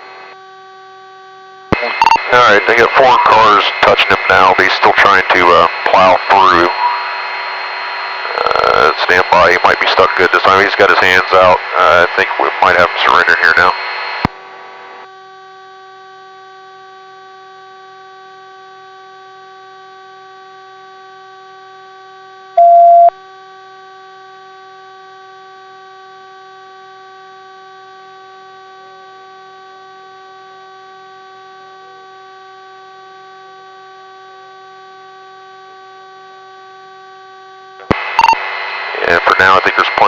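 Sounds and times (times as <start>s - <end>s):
cockpit hum: 1.7s - 14.2s, 37.8s - 40.0s
loud single-pitch beep: 1.8s - 2.3s, 22.6s - 23.1s, 38.1s - 38.4s.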